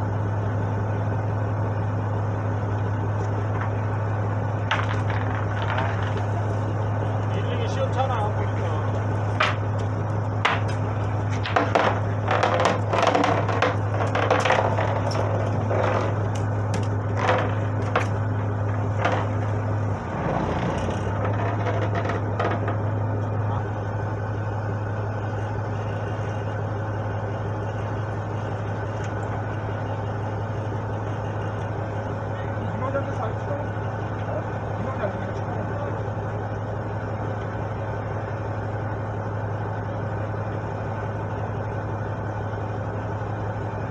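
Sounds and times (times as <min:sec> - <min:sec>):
boat engine droning: 0:00.0 - 0:43.9
sharp clicks and knocks: 0:04.6 - 0:06.5, 0:09.4 - 0:19.6, 0:20.2 - 0:22.8.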